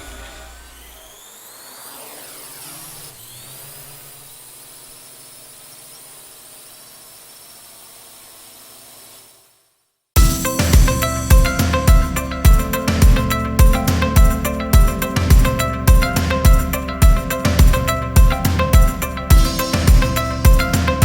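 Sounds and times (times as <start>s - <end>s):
high mechanical whine: 0.0s - 9.5s
loud music with a beat: 10.2s - 21.0s.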